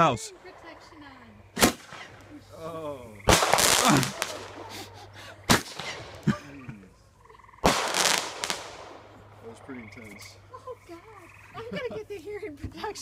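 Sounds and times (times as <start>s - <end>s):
roman candle firing sharp reports: 0.0s - 6.6s, 7.6s - 10.5s
firework hissing: 1.6s - 2.4s, 3.3s - 6.2s, 7.7s - 9.0s.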